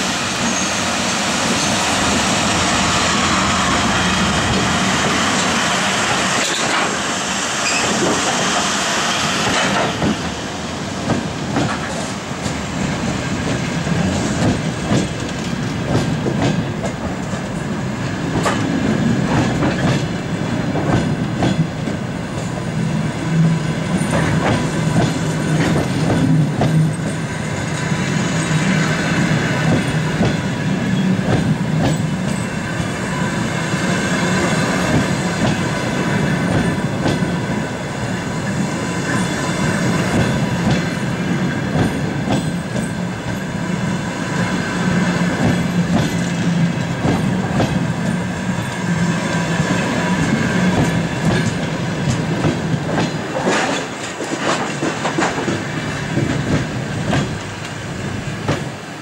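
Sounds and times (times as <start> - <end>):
train wheels rumbling: 0.0 - 59.0
wheels clicking over rail joints: 49.8 - 57.8.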